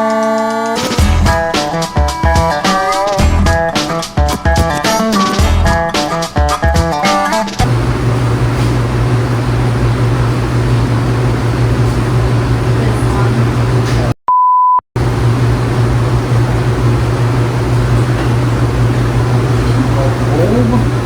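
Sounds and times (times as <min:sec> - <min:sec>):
low hum and rush: 0:07.6 - 0:14.2, 0:15.0 - 0:21.0
censor bleep tone: 0:14.3 - 0:14.8.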